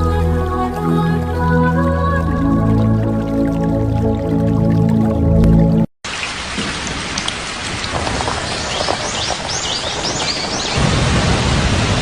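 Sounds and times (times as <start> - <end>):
music: 0.0 - 5.9
rainfall hiss: 6.1 - 12.0
bird chirps: 8.4 - 10.8.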